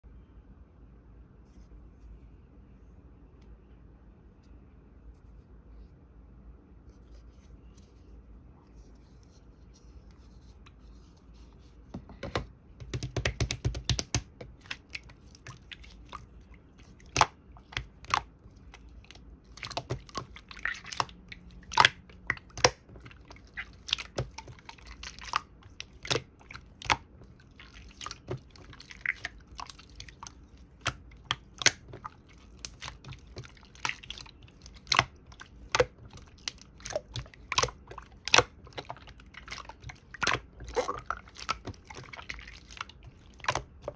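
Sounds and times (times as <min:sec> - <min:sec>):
slime squeezed by hand: 0:13.3 - 0:43.9.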